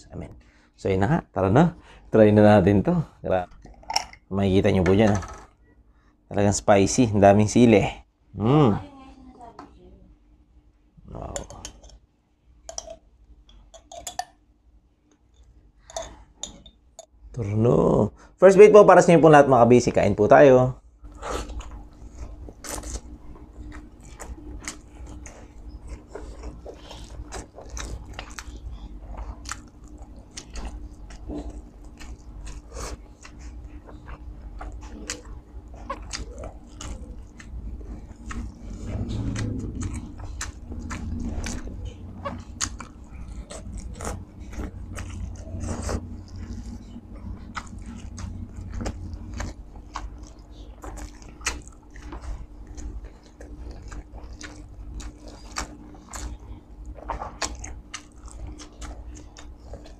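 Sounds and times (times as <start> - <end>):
person chewing and lip-smacking: 21.1 - 59.9.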